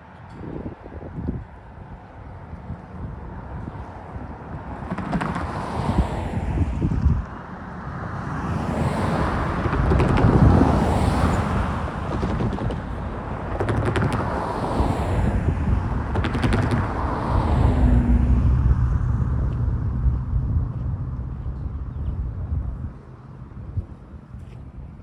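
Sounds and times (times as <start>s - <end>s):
train wheels rumbling on rail: 8.7s - 24.0s.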